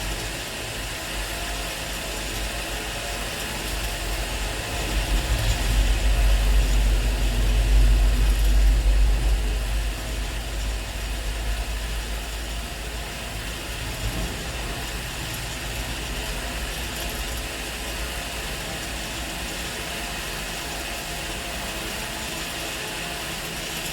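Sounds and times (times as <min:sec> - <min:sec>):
diesel engine rumbling: 0:03.5 - 0:18.9.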